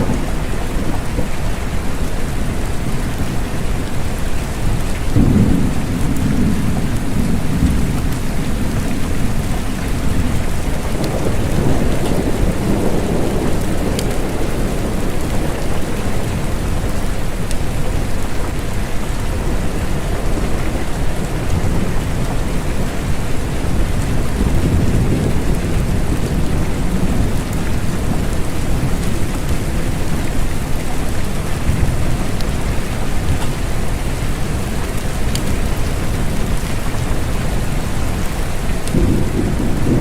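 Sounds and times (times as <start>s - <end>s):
steady rain: 0.0s - 40.0s
thunder rolling: 4.7s - 18.8s, 38.2s - 40.0s.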